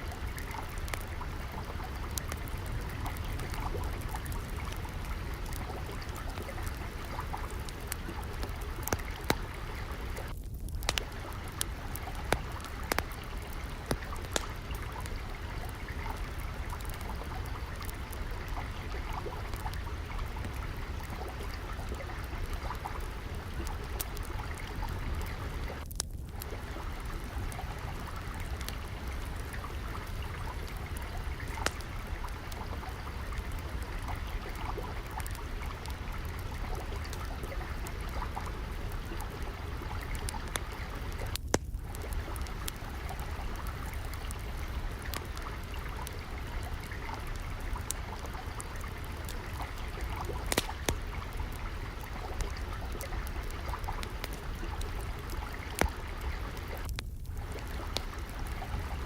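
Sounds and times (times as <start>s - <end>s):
fire popping: 0.0s - 59.0s
water trickling: 0.0s - 59.0s
wood fire crackling: 0.0s - 59.0s.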